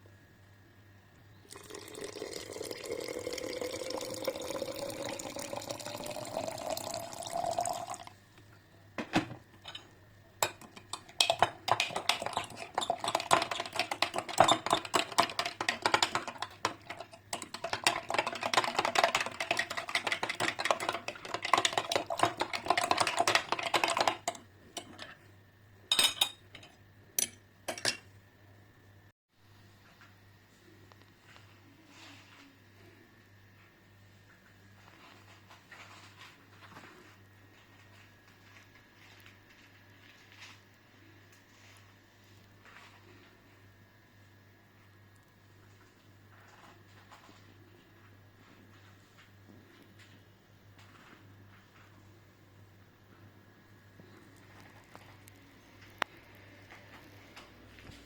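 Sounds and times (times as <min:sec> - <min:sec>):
liquid pouring into a cup: 0:01.5 - 0:08.2
spoon clinking while stirring: 0:09.6 - 0:25.1.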